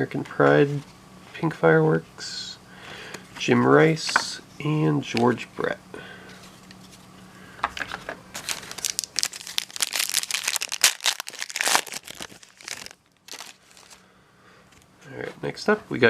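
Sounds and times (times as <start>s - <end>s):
plastic wrapper crinkling: 8.3s - 14.0s.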